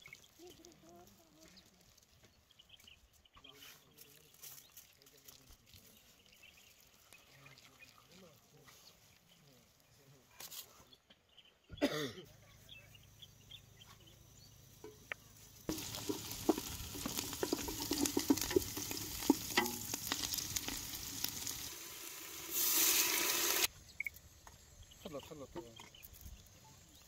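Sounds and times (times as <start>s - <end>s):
onions sizzling in pot: 14.8s - 24.7s
wooden spoon scraping pot: 15.7s - 21.7s
liquid poured into hot pot: 15.7s - 23.7s.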